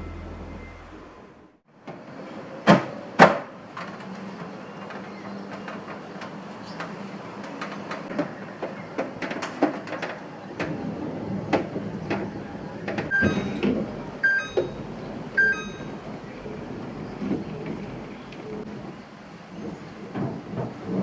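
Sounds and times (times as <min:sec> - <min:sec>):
short electronic beeps: 0:13.1 - 0:13.6, 0:15.4 - 0:15.9.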